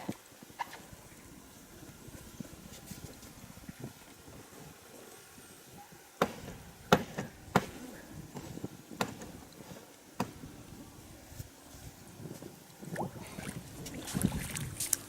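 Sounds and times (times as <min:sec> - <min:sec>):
sharp chopping blows: 0:06.2 - 0:09.4.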